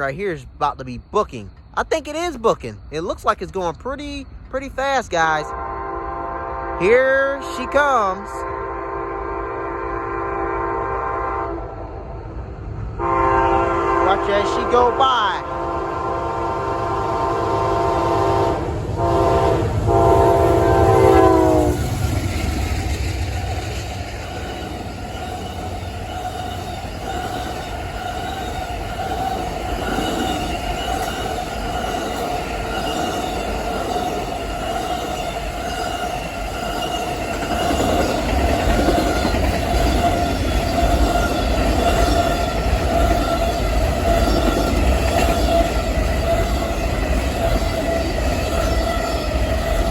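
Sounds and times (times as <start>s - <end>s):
train wheels rumbling on rail: 0.0s - 49.9s
train air horn: 5.5s - 11.9s, 13.0s - 22.0s.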